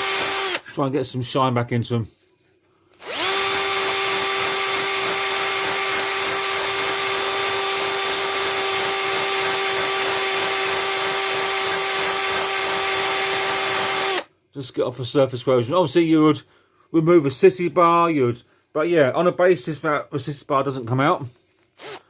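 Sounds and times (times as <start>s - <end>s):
electric drill brush on metal: 0.0s - 0.6s, 3.0s - 14.3s.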